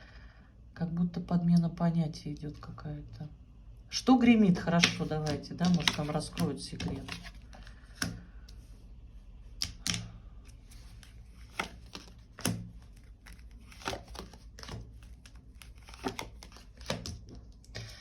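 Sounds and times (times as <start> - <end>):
cards snapping and tapping: 4.8 - 8.6, 9.6 - 10.2, 10.9 - 17.7.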